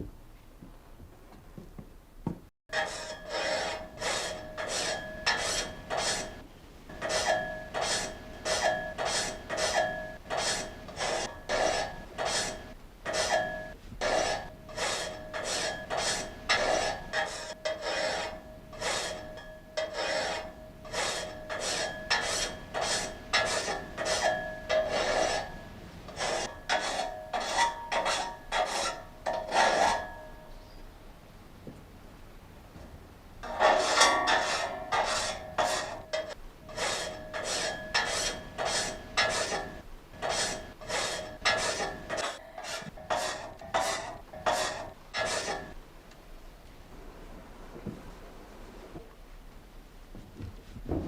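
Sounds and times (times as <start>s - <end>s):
frame saw rasping through log: 2.7s - 30.2s, 33.4s - 45.8s.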